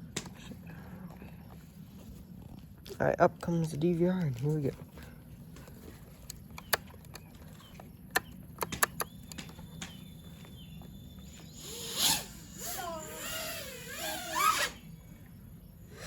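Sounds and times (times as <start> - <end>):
sharp clicks: 6.2 - 7.4, 8.1 - 10.0
quadcopter motors buzzing whine: 9.4 - 16.0.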